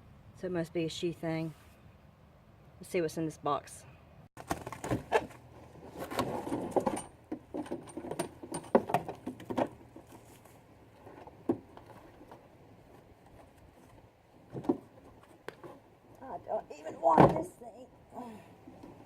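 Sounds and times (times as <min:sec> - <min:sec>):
cardboard packaging rustling: 0:04.4 - 0:06.5.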